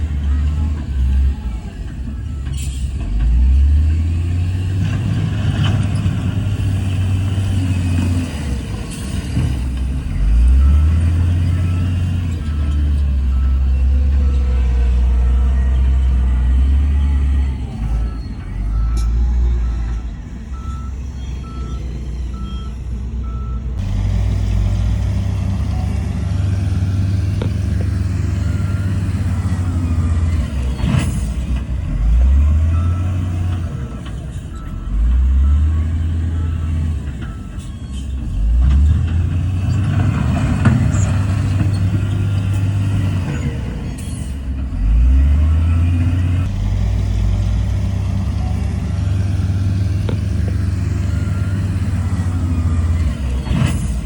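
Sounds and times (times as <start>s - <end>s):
diesel machinery engines revving: 0.0s - 54.0s
reversing alarm beeping: 10.1s - 23.8s, 25.5s - 31.4s, 32.0s - 38.8s, 48.2s - 54.0s.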